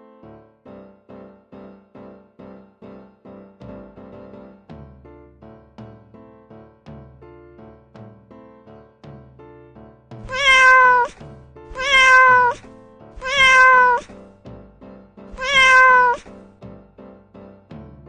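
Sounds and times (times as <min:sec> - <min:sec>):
cat meowing: 0:10.2 - 0:14.2, 0:15.3 - 0:16.4.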